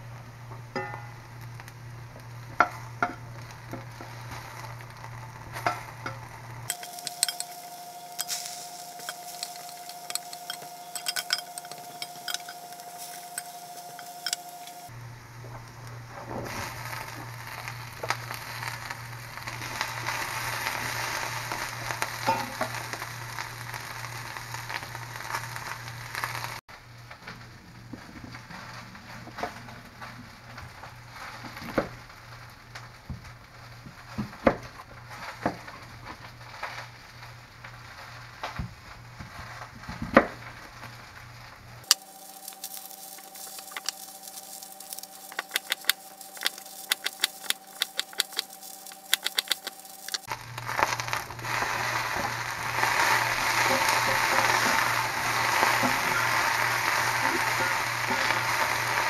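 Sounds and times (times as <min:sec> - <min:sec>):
potatoes sizzling in a skillet: 0:00.0 - 0:59.0
spatula scraping a pan: 0:05.6 - 0:14.9.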